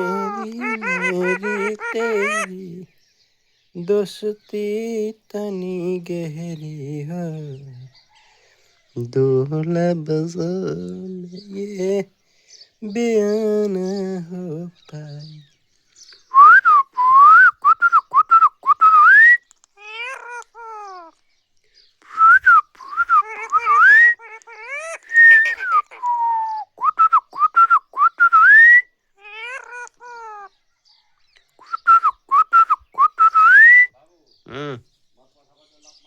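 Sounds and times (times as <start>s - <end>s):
parrot whistling: 0.0s - 2.5s, 16.4s - 19.4s, 22.1s - 28.8s, 31.6s - 33.9s
parrot falling calls: 0.0s - 2.6s, 19.8s - 21.2s, 22.2s - 26.8s, 29.2s - 30.6s.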